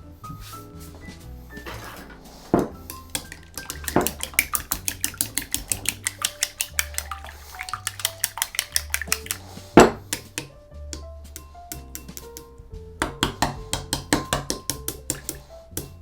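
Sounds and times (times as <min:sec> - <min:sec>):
utensil clicking against bowl: 0:02.9 - 0:09.5, 0:10.1 - 0:12.5, 0:13.2 - 0:16.0.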